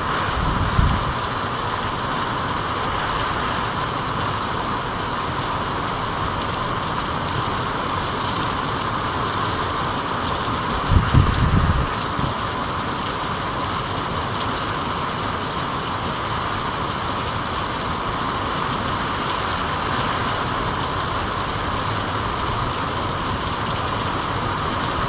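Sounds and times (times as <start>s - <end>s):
steady rain hiss: 0.0s - 25.0s.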